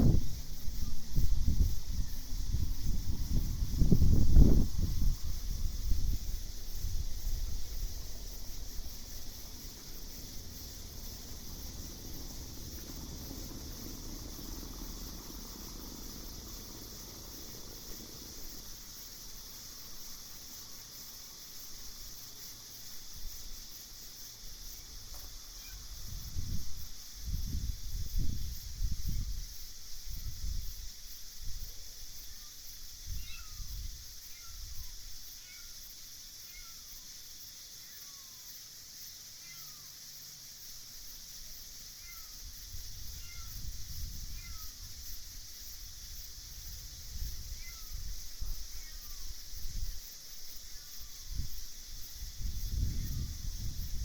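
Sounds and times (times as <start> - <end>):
low rumbles: 0.0 - 19.3
insects trilling: 0.0 - 54.0.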